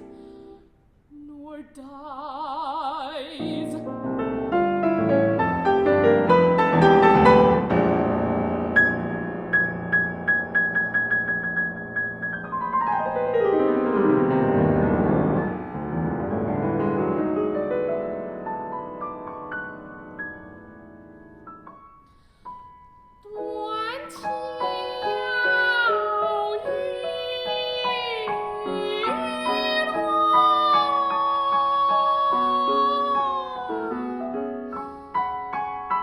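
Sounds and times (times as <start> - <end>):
person singing opera-style: 1.1 - 3.9, 23.2 - 34.9
piano playing: 3.3 - 36.0.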